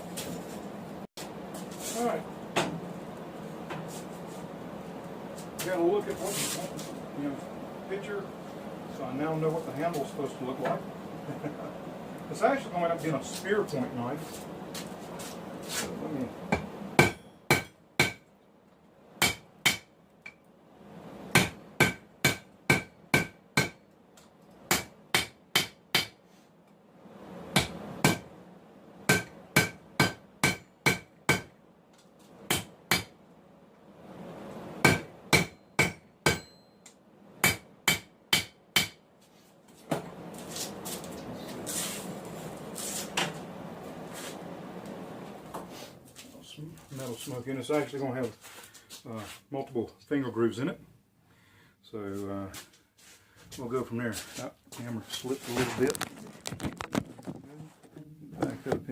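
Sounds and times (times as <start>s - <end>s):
steady rustling noise: 0.0s - 7.7s, 12.4s - 16.1s, 39.1s - 49.6s, 52.0s - 58.9s
hammer striking hot steel on anvil: 16.5s - 18.3s, 19.2s - 20.4s, 21.3s - 23.8s, 24.7s - 26.2s, 27.5s - 28.3s, 29.1s - 31.5s, 32.5s - 33.1s, 34.8s - 36.8s, 37.4s - 39.0s.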